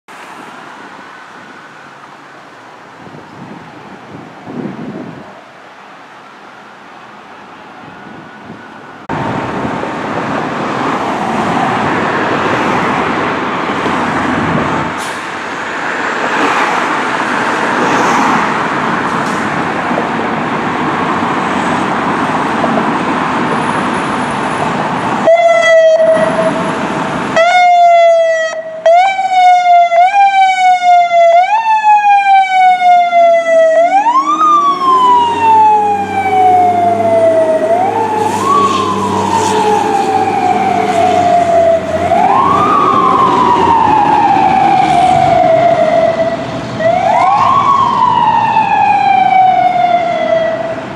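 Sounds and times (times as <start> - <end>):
fire engine and road noise: 0.1 - 50.9
siren wailing: 25.2 - 50.8
low wail: 32.2 - 50.7.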